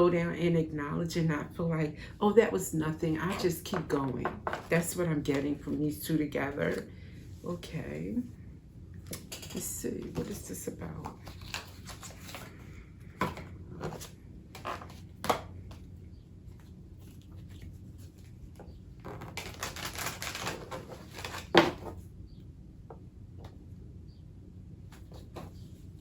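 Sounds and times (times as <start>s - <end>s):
cards shuffling: 9.1s - 22.0s
cards tapping and snapping: 13.1s - 15.9s.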